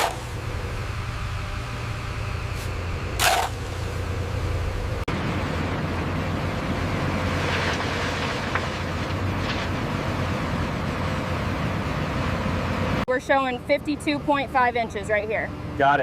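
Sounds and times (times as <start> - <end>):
diesel engine running: 0.0 - 16.0
short hiss: 2.5 - 3.8.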